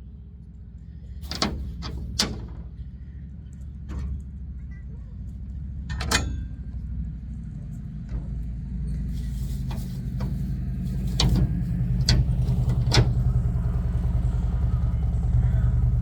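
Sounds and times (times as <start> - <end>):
motorbike engine humming: 9.1 - 16.0.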